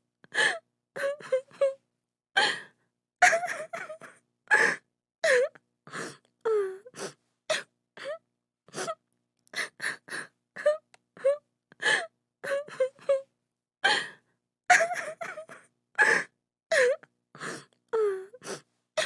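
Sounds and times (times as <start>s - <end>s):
woman crying and sobbing: 1.0s - 1.8s, 3.2s - 5.5s, 14.7s - 17.0s.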